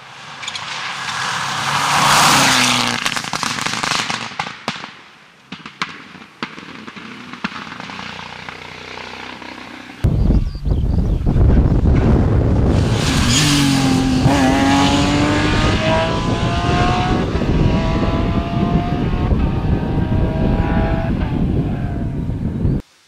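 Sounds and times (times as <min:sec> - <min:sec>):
rushing noise: 0:11.2 - 0:22.1
rally car engine revving: 0:12.1 - 0:22.2.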